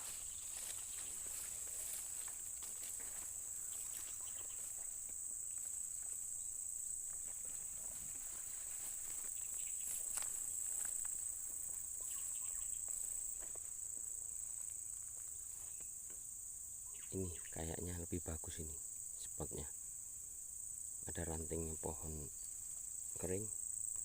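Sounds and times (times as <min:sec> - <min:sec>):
faint rustles and ticks: 0:00.0 - 0:16.3
high-pitched insect chorus: 0:00.0 - 0:24.0.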